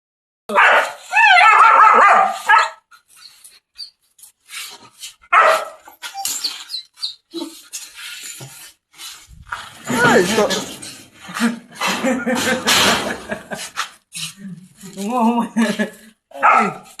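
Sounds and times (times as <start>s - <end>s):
dog barking: 0.5s - 2.8s, 5.3s - 5.8s, 16.4s - 16.9s
dog whining: 6.0s - 7.6s.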